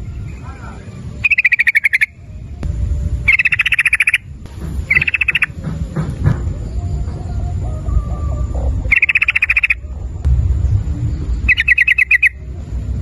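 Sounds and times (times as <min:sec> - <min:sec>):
low background rumble: 0:00.0 - 0:13.0
bird clicking rattles: 0:01.2 - 0:02.1, 0:03.3 - 0:05.5, 0:08.9 - 0:09.8, 0:11.5 - 0:12.3.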